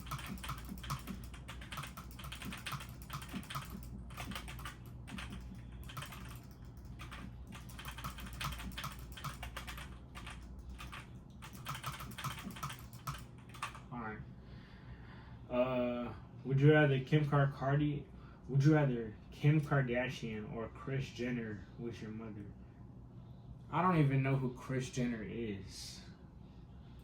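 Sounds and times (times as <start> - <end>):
typing on computer keyboard: 0.0 - 13.8
steady low hum: 0.0 - 27.0.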